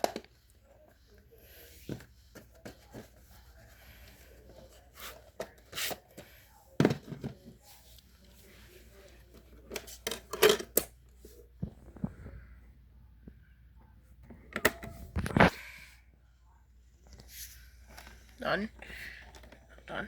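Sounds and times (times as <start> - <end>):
objects handled clicking and knocking: 0.0 - 12.1, 13.8 - 15.5, 17.8 - 20.0.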